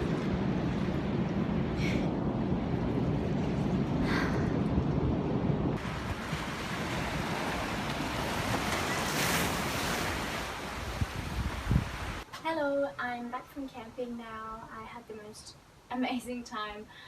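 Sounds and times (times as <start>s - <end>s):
wind on microphone: 0.0s - 12.2s.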